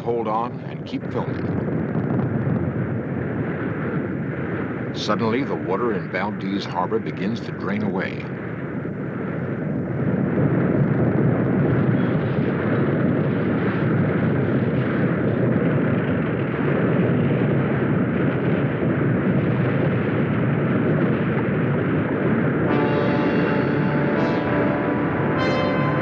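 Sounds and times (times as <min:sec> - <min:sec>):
low rumbling roar: 0:08.2 - 0:26.0.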